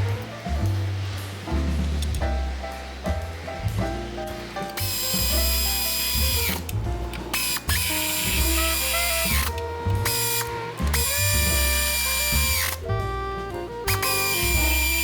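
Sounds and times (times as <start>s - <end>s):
background music: 0.0s - 15.0s
power tool motor whine: 4.8s - 12.9s, 13.8s - 15.0s.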